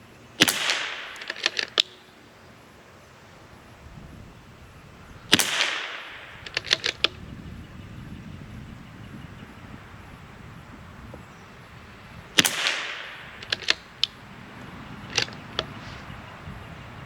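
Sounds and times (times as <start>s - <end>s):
rifle shot: 0.4s - 2.0s, 5.3s - 7.2s, 12.4s - 14.2s, 15.0s - 16.0s
rifle bolt clicks: 0.4s - 2.1s, 5.3s - 7.2s, 12.4s - 14.2s, 15.0s - 16.0s.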